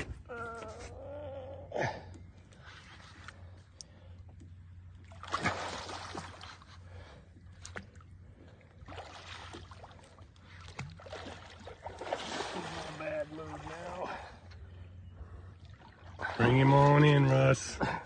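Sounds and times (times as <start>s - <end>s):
low steady hum: 0.0s - 18.0s
water sloshing and splashing: 0.0s - 18.0s.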